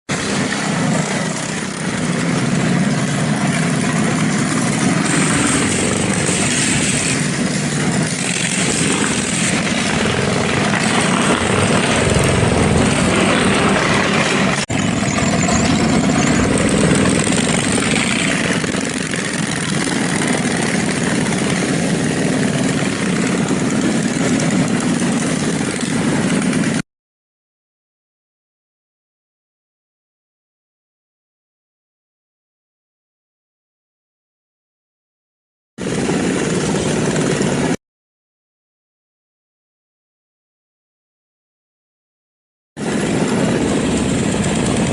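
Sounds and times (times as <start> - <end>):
mini bike engines running: 0.1 - 26.8, 35.8 - 37.8, 42.8 - 44.9.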